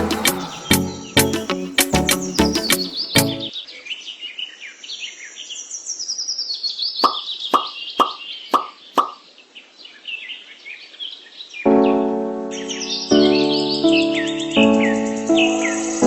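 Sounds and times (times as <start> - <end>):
birds chirping: 0.0 - 3.5, 6.9 - 9.4
music with held notes: 0.0 - 3.5, 11.7 - 16.0
water-drop-like plops: 7.0 - 9.2.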